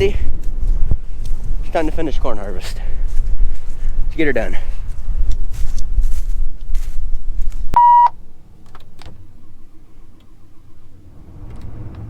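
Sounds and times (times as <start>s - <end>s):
wind buffeting microphone: 0.0s - 7.7s
short electronic beep: 7.8s - 8.2s.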